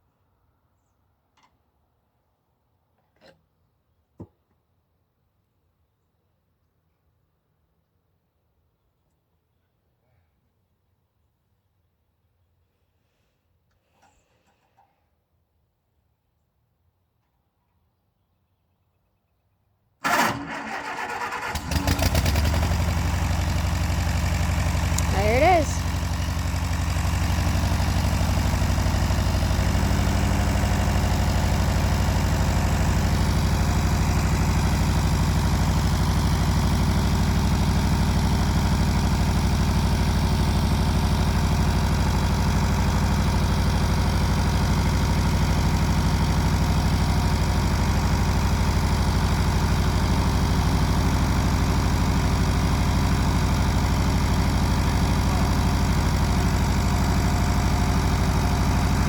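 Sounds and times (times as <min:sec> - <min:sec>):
tractor engine idling: 0:20.0 - 0:59.0.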